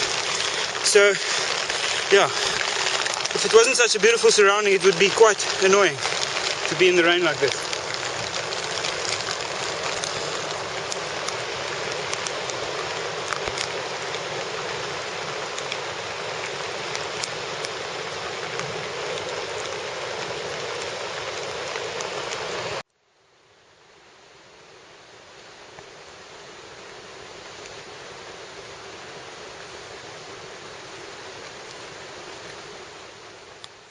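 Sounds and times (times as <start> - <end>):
heavy rain hissing: 0.0 - 22.8, 23.6 - 33.9
raindrops tapping: 0.0 - 22.8
quiet hiss: 0.0 - 33.9.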